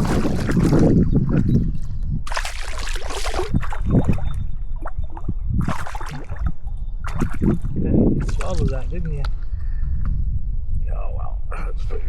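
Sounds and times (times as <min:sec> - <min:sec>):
water splashing and sloshing: 0:00.0 - 0:08.9.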